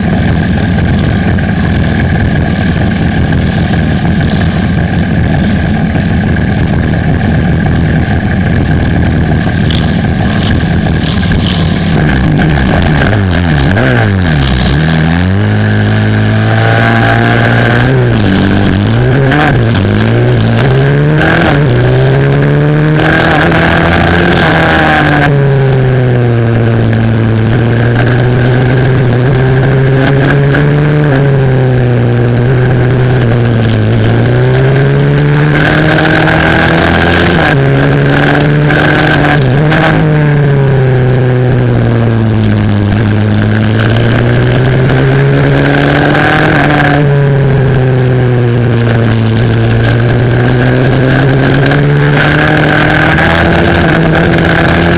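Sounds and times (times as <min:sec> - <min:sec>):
motorbike engine at racing speed: 0:00.0 - 0:54.9.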